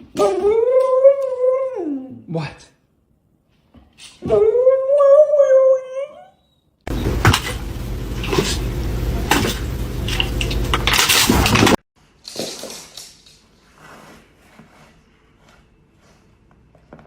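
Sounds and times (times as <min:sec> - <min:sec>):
dog howling whine: 0:00.2 - 0:02.2, 0:04.2 - 0:06.6.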